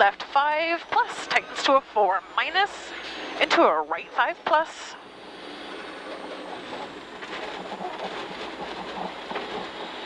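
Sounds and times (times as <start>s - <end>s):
tyre and road noise: 0.0s - 10.0s
small knocks and rattles: 6.5s - 10.0s.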